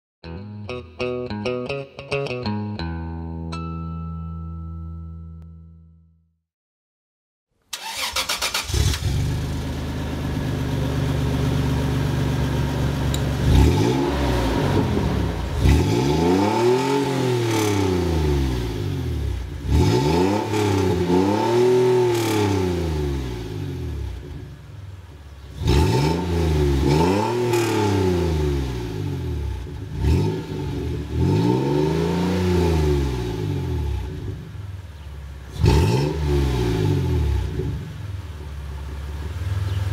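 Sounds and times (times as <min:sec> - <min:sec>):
engine exhaust idling and revving: 0:08.6 - 0:39.9.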